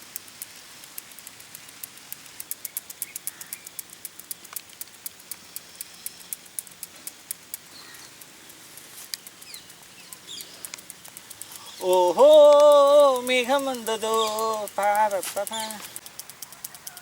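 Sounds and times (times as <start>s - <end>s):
toy clicking rapidly: 0.0s - 17.0s
faint bird chirps: 7.7s - 8.2s, 9.4s - 10.8s, 11.4s - 17.0s.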